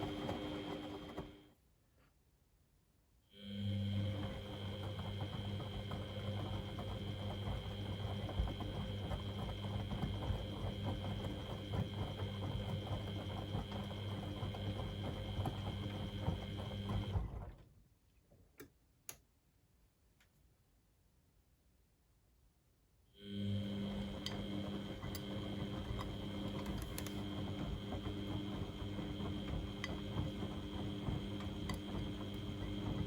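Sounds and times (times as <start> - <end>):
washing machine running: 0.0 - 1.6, 3.4 - 17.6, 23.2 - 33.0.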